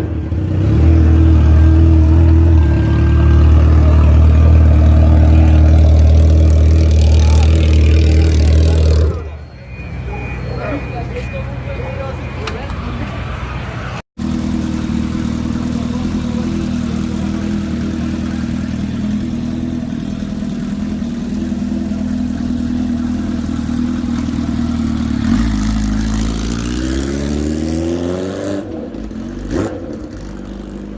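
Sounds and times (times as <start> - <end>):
motorcycle engine accelerating: 0.0 - 9.4, 14.2 - 30.9.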